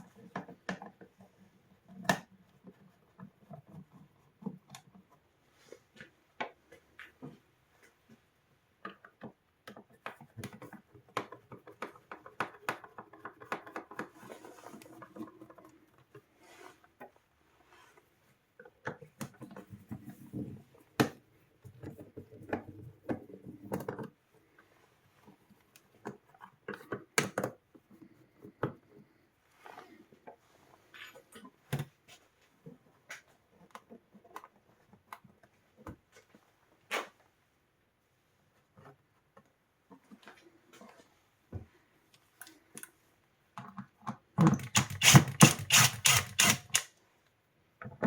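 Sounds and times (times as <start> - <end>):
small tools clicking and scraping: 44.4 - 46.9.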